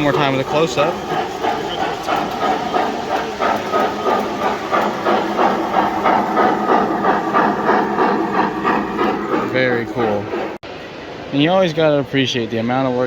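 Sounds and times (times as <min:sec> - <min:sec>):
model steam locomotive chuffing: 0:00.0 - 0:10.6.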